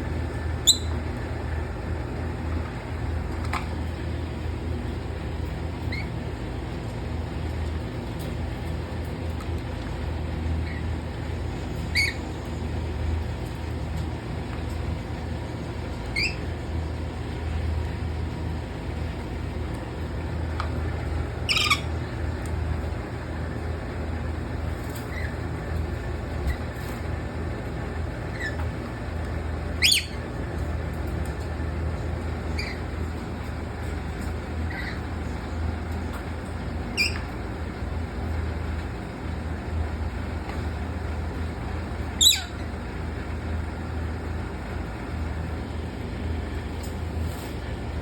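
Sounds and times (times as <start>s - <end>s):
steady low hum: 0.0s - 48.0s
parrots squawking: 0.6s - 1.0s, 11.8s - 12.3s, 16.1s - 16.5s, 21.4s - 22.0s, 29.8s - 30.3s, 32.5s - 33.0s, 34.6s - 35.5s, 36.9s - 37.3s, 42.2s - 42.7s.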